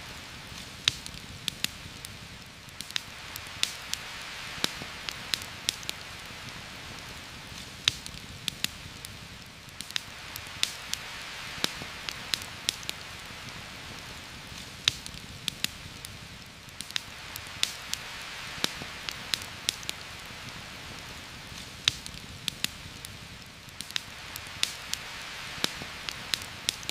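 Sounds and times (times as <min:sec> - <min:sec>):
campfire crackling and popping: 0:00.0 - 0:26.9
heavy rain hissing: 0:00.0 - 0:26.9.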